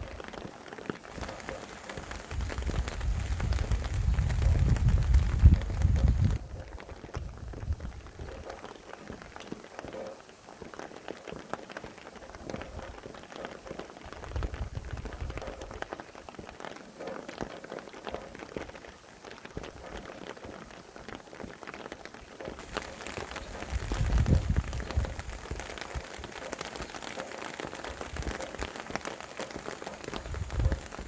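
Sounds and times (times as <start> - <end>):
rain falling: 0.0 - 31.0
low rumble of wind: 1.3 - 8.6, 14.1 - 15.9, 22.6 - 26.4, 27.9 - 28.6, 30.0 - 31.0.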